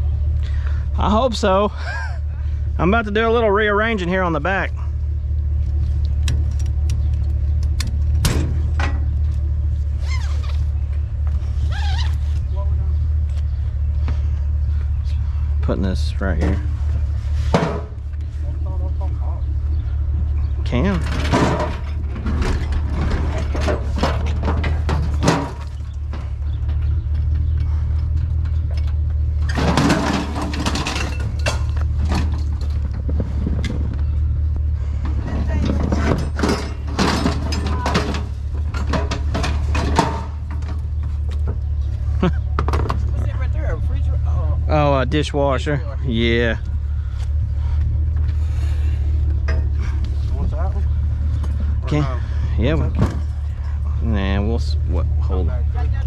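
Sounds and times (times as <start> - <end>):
steady low rumble: 0.0 - 56.0
truck engine idling: 0.0 - 56.0
short squeaky scrapes: 10.0 - 10.7, 11.5 - 12.4
scrap metal clattering: 20.7 - 33.6, 34.9 - 41.0
scrap metal knocking in truck bed: 35.0 - 40.8.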